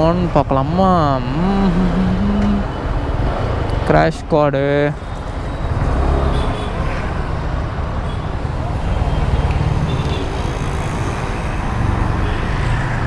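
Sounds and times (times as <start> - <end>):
background voices: 0.0 - 2.8
passing traffic: 0.0 - 13.0.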